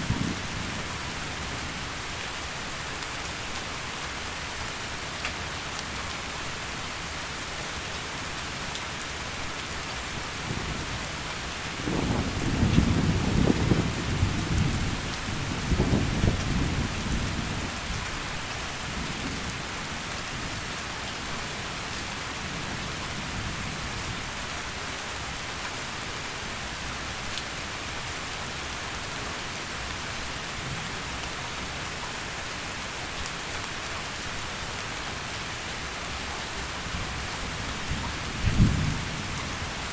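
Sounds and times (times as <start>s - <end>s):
heavy rain falling: 0.0s - 39.9s
rolling thunder: 11.8s - 17.5s, 38.4s - 39.6s.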